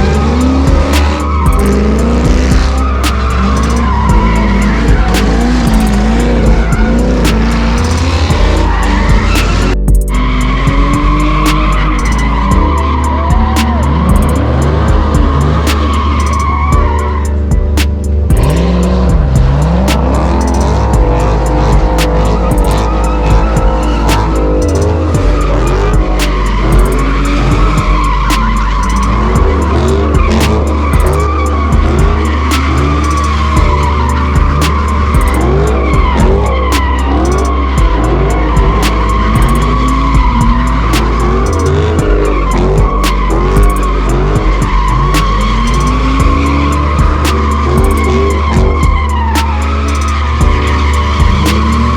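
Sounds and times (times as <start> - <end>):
car engine revving: 0.0 - 51.9
car tyres squealing: 0.0 - 51.9
music with heavy bass beat: 0.0 - 51.9.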